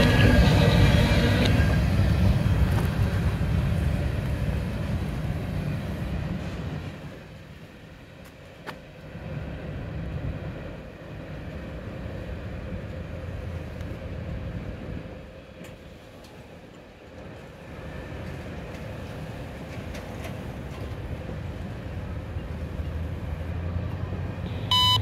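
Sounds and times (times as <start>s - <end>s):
automated radio announcement: 0.0s - 1.8s
freight train rumble: 0.0s - 25.0s
scanner radio tone: 24.4s - 25.0s.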